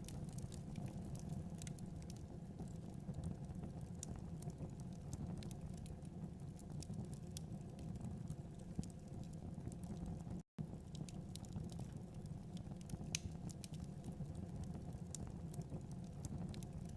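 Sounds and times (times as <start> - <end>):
low rumble of flames: 0.0 - 16.9
wood fire crackling and popping: 0.0 - 16.9.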